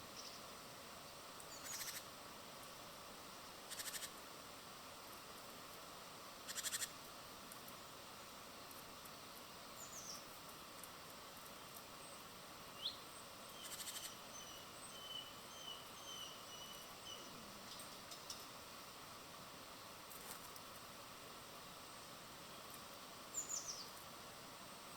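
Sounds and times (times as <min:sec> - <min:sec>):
steady hiss: 0:00.0 - 0:24.9
small birds calling: 0:01.4 - 0:02.1, 0:03.4 - 0:04.2, 0:06.4 - 0:07.0, 0:12.0 - 0:18.5, 0:22.5 - 0:24.0.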